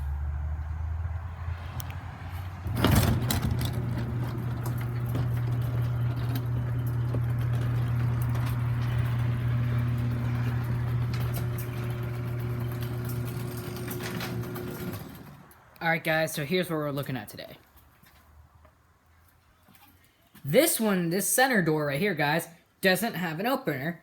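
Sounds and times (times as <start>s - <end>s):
motor humming: 2.6s - 15.4s
garage door opener clunk: 2.6s - 15.5s.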